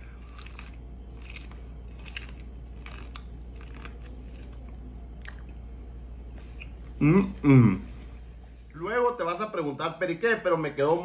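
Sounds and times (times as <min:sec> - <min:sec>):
man chewing corn on the cob: 0:00.0 - 0:05.7
low hum: 0:00.0 - 0:09.2.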